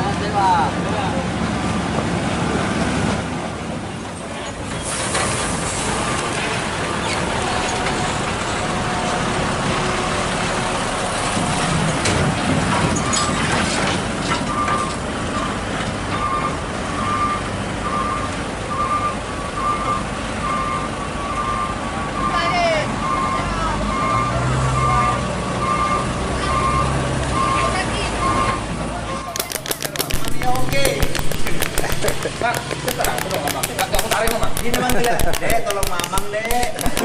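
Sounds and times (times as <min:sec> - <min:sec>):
heavy truck engines running: 0:00.0 - 0:37.0.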